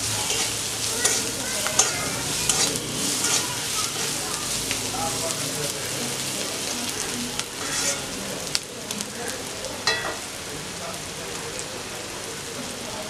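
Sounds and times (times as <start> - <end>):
okra sizzling in hot oil: 0.0 - 13.0
metal spatula scraping a pan: 0.1 - 4.2, 7.6 - 8.2
sharp metal clinks: 9.9 - 10.3.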